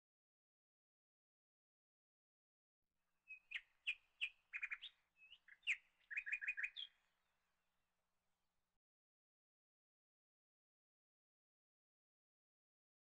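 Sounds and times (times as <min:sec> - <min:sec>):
small bird chirping: 0:03.3 - 0:07.0.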